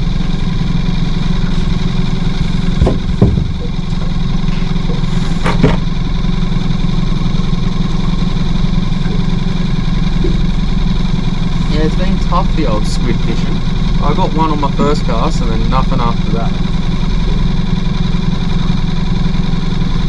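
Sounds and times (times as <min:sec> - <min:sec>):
outboard motor idling: 0:00.0 - 0:20.0
handling knocks: 0:02.0 - 0:06.0.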